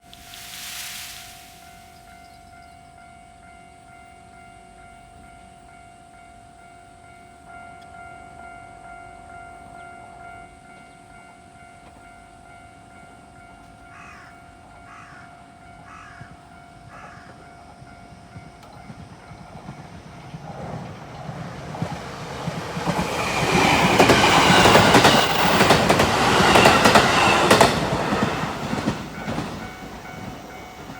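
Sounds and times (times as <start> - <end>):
train passing: 0.0 - 5.8, 17.4 - 30.9
rail-joint clatter: 18.4 - 30.9.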